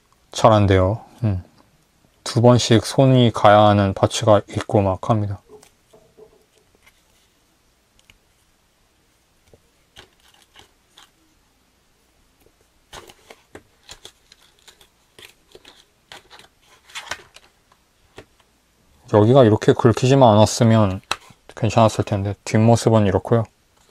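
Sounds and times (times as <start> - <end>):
plastic rubbing and scratching: 9.9 - 11.2, 12.9 - 18.5.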